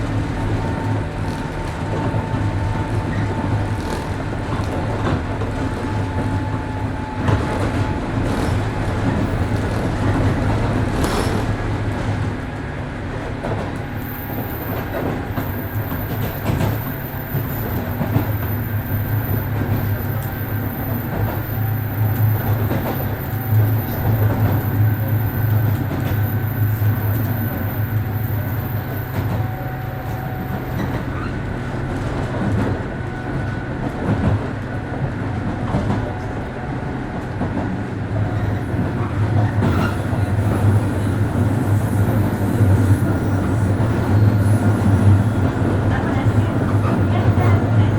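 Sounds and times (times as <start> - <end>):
train rumble and hum: 0.0 - 47.9
rail-joint clicks: 0.1 - 47.9.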